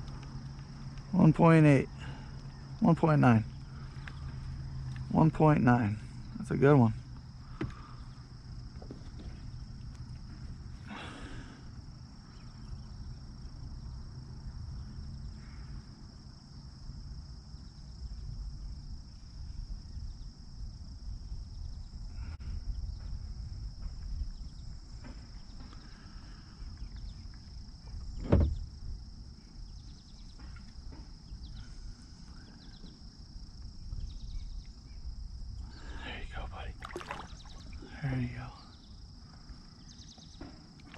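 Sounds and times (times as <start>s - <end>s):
high-pitched insect chorus: 0.0s - 40.9s
low rumbling handling noise: 27.0s - 29.2s.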